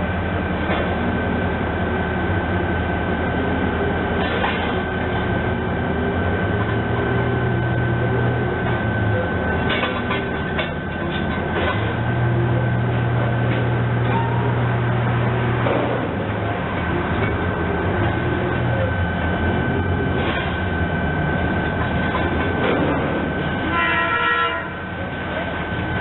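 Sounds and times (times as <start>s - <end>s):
train running on rails: 0.0s - 26.0s.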